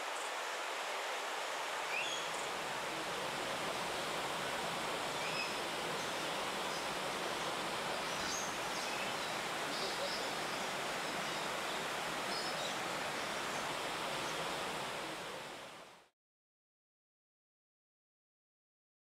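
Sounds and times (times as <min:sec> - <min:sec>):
faint bird chirps: 0:01.9 - 0:02.5.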